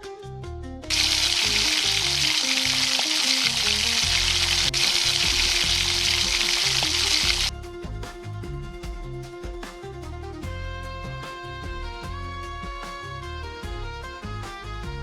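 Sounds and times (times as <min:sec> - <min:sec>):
food sizzling in a pan: 0:00.9 - 0:07.5.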